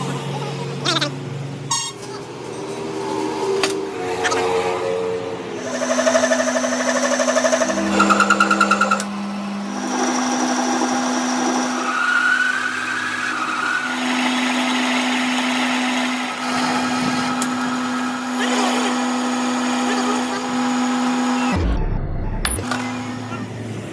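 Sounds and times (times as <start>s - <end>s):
power tool motor whining: 5.5s - 21.7s, 22.6s - 23.9s.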